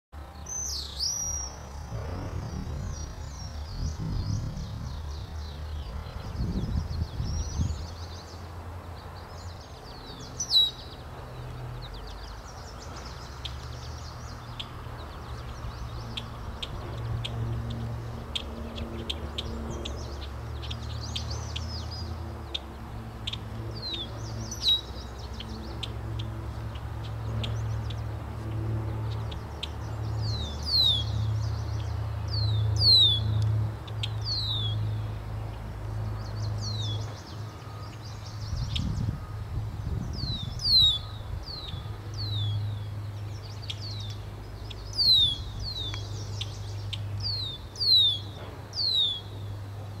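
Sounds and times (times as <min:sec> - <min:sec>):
low hum: 0:00.2 - 0:07.6
low rumble: 0:01.3 - 0:07.8
small bird chirping: 0:36.4 - 0:49.4.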